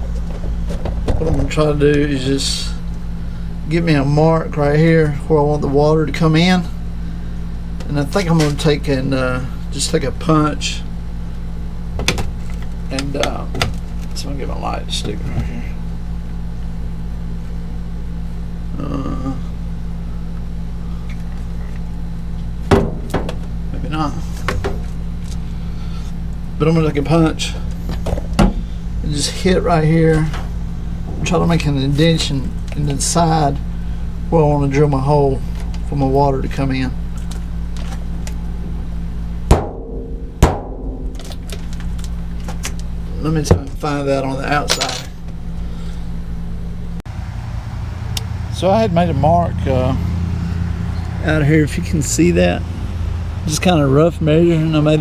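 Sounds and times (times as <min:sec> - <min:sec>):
low mechanical hum: 0:00.0 - 0:55.0
sharp knock: 0:39.5 - 0:41.3
hammer striking punch on metal: 0:39.5 - 0:41.4.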